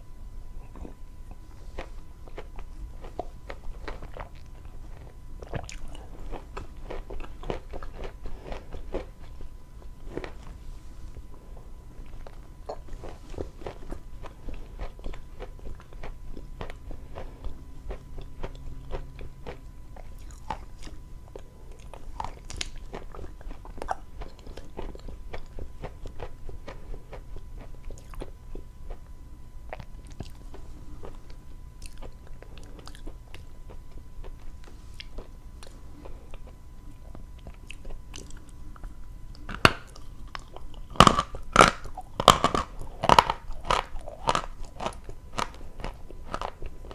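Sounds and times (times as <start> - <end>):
chalk being chewed: 29.7 - 46.9.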